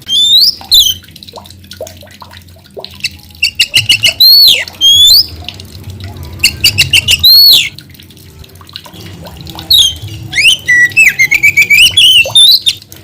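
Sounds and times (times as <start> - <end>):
magpie-robin singing: 0.1 - 1.0, 3.0 - 5.3, 6.6 - 7.7, 9.7 - 12.8.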